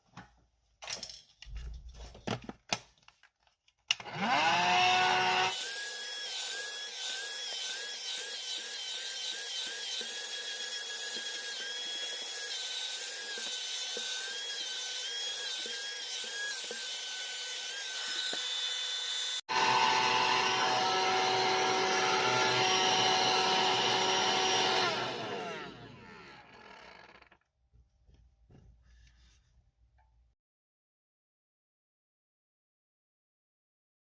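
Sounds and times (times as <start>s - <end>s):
stick vacuum whining: 3.9s - 27.4s.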